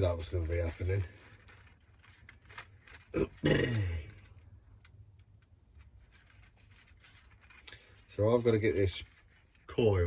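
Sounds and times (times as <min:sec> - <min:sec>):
man grunting: 0:03.2 - 0:04.0.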